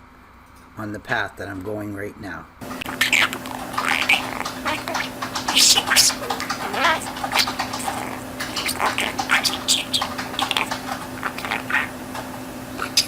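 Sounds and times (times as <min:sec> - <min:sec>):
steady low hum: 0:02.6 - 0:13.0
budgerigar chattering and chirping: 0:02.8 - 0:12.0, 0:12.8 - 0:13.0.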